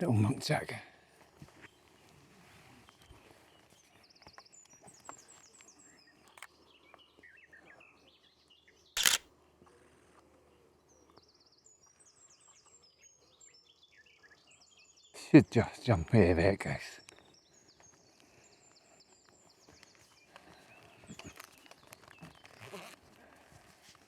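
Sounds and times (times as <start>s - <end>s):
faint outdoor background noise: 9.0s - 9.2s.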